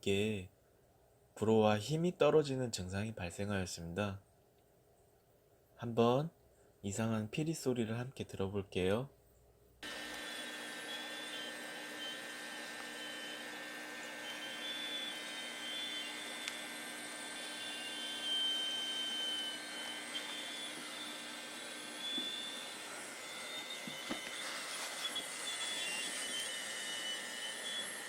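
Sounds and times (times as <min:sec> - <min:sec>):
aquarium air blower humming: 0:09.8 - 0:28.0
high-pitched whistle: 0:22.0 - 0:28.0.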